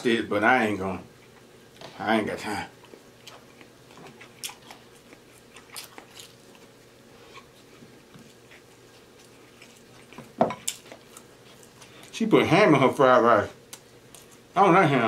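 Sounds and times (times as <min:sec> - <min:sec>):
man chewing food: 0:01.1 - 0:01.9, 0:02.7 - 0:12.2, 0:13.6 - 0:14.6.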